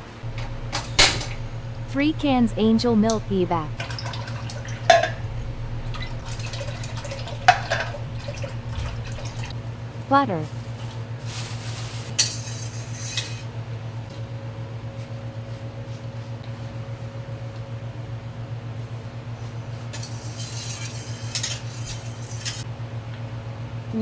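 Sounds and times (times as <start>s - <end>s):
steady low hum: 0.0s - 24.0s
utensil scraping a pot: 10.6s - 13.5s, 19.9s - 22.7s.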